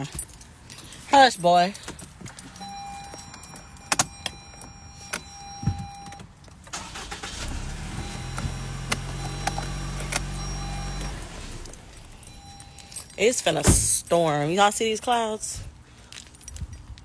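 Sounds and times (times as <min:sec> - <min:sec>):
car engine running: 0:06.7 - 0:12.4.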